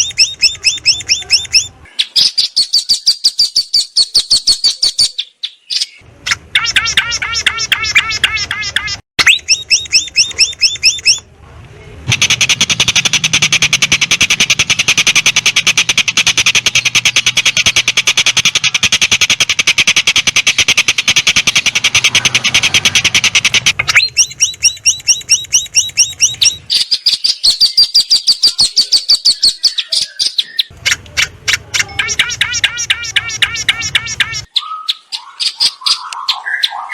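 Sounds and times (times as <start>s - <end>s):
fast high bird chirps: 0.0s - 11.3s, 12.1s - 36.9s
high warbling bird phrase: 0.0s - 11.3s, 12.1s - 36.9s
fast buzzing bird rattle: 12.1s - 26.6s.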